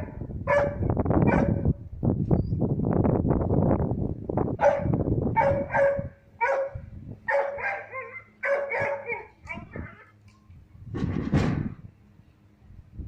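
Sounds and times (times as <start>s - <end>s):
dog barking: 0.0s - 1.7s, 4.6s - 9.4s
wind buffeting microphone: 0.0s - 13.0s.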